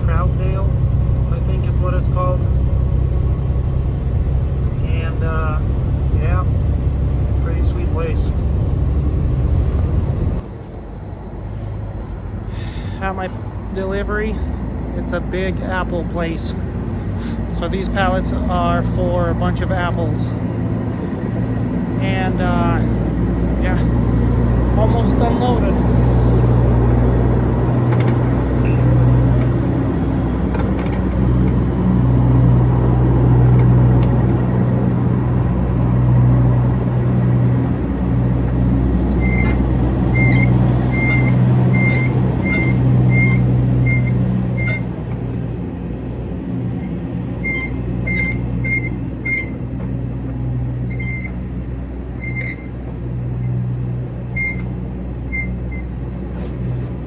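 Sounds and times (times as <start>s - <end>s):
engine idling: 0.0s - 57.0s
high electronic beeps: 39.1s - 44.8s.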